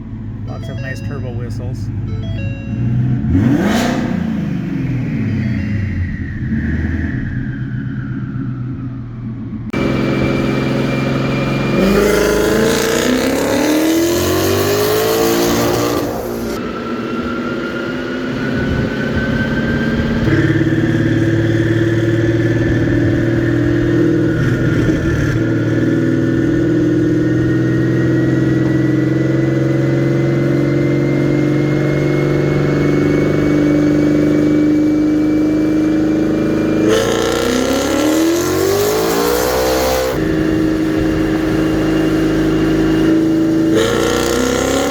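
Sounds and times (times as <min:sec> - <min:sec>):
car engine accelerating: 0:00.0 - 0:44.9
turbo whistle: 0:04.8 - 0:08.2.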